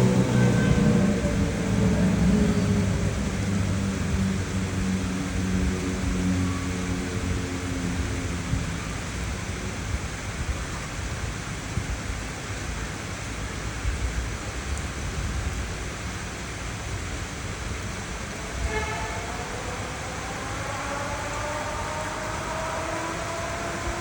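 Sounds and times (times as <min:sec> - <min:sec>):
low rumble: 0:00.0 - 0:10.5, 0:16.6 - 0:24.0
rising engine-like whine: 0:00.0 - 0:10.8, 0:16.4 - 0:24.0
steady rain: 0:00.0 - 0:24.0.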